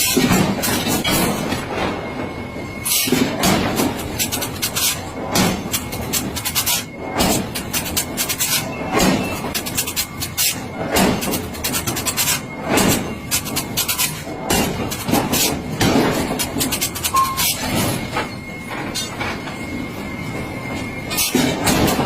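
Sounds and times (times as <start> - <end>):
steady background noise: 0.0 - 22.0
faint steady high tone: 17.1 - 21.2.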